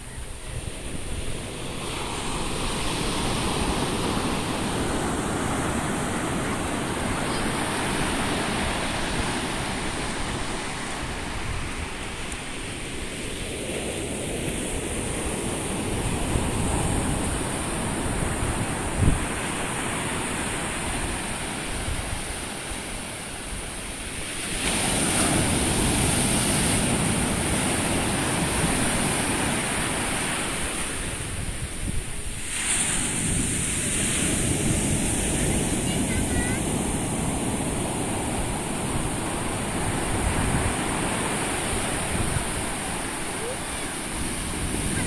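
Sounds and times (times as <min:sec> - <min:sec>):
ocean surf on a beach: 0:00.0 - 0:45.0
wind on the microphone: 0:00.0 - 0:45.0
wave crashing: 0:32.4 - 0:45.0.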